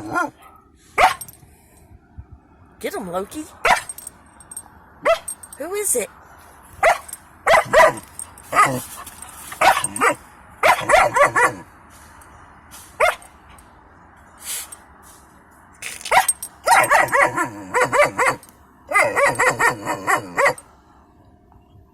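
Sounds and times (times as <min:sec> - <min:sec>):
puppy barking: 0:00.0 - 0:01.3, 0:03.6 - 0:04.0, 0:05.0 - 0:05.4, 0:06.8 - 0:11.7, 0:13.0 - 0:13.3, 0:16.1 - 0:20.7.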